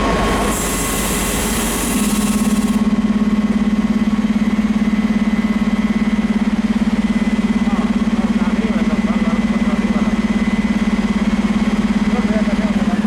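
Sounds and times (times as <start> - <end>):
hiss: 0.3 - 2.8.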